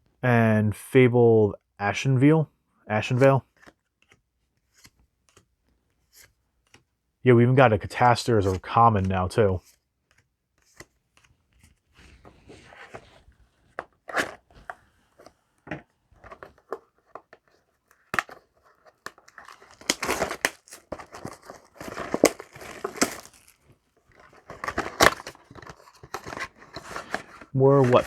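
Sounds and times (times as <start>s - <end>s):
packaging tearing and crinkling: 18.0s - 28.0s.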